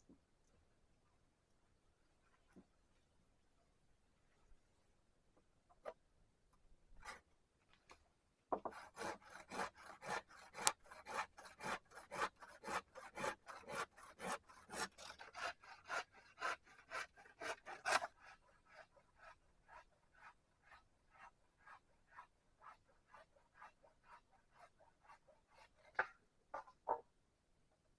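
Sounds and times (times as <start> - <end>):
hand tool rasping on wood: 8.6 - 26.0.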